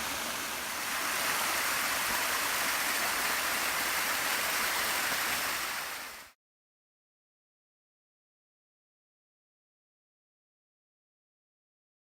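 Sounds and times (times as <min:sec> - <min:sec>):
waterfall rushing: 0:00.0 - 0:06.4.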